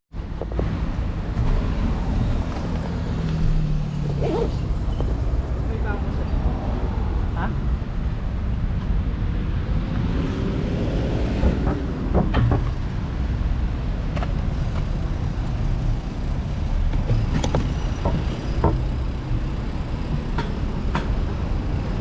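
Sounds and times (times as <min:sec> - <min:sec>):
traffic low rumble: 0:00.1 - 0:22.0
vehicle passing: 0:01.4 - 0:08.0, 0:09.3 - 0:13.3
clicks and knocks: 0:11.4 - 0:12.8.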